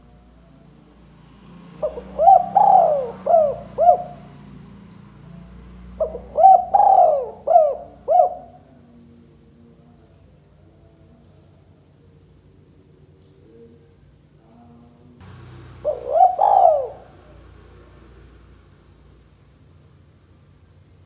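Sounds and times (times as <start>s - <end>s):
dove cooing: 1.8s - 4.3s, 5.9s - 8.6s, 15.2s - 18.4s.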